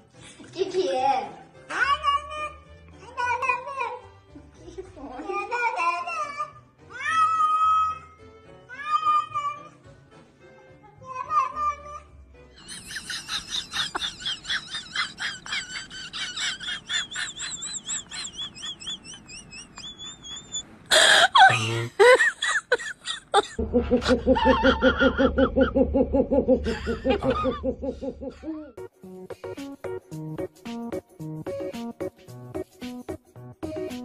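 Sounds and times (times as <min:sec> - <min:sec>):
people laughing: 0:12.6 - 0:28.8.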